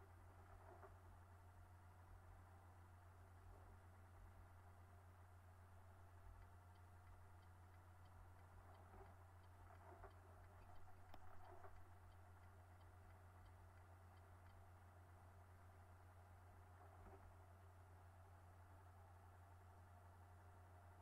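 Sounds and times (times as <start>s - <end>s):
faint low hum: 0.0s - 21.0s
quiet ticking: 5.4s - 15.8s.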